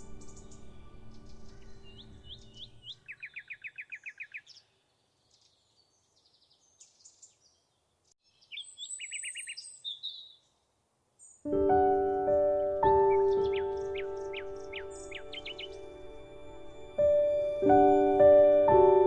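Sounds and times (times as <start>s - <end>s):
soft background music: 0.0s - 3.0s, 11.5s - 19.0s
birds chirping: 0.0s - 19.0s
bird trilling: 12.5s - 16.0s.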